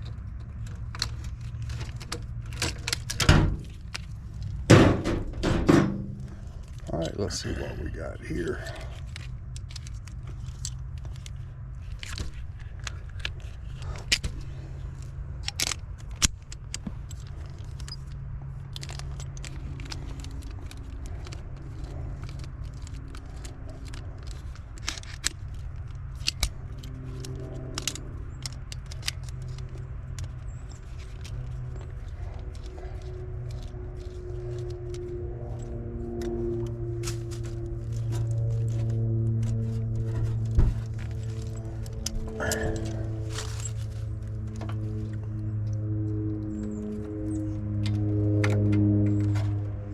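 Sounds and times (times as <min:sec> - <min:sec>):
steady low hum: 0:00.0 - 0:49.9
tools clicking and clinking on metal: 0:08.5 - 0:45.4.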